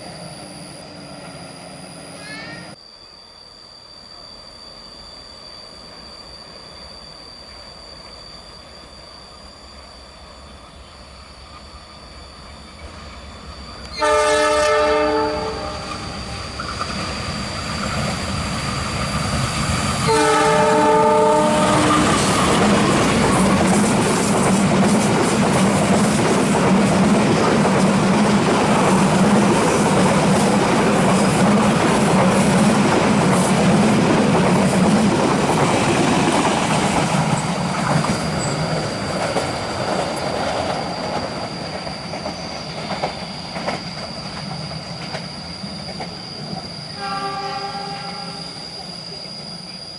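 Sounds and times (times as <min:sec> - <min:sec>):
train wheels rumbling on rail: 0:09.9 - 0:49.9
train horn: 0:13.9 - 0:16.4, 0:20.0 - 0:23.6, 0:46.9 - 0:48.7.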